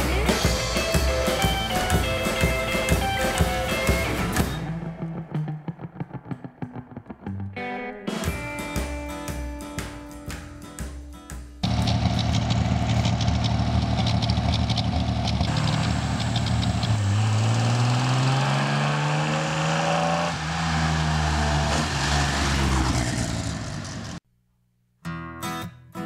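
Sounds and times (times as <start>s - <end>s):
car engine accelerating: 11.6s - 24.2s.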